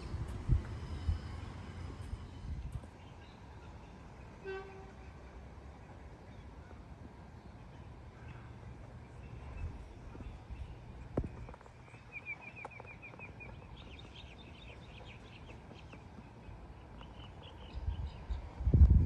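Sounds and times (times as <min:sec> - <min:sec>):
birds chirping: 0:07.4 - 0:18.6.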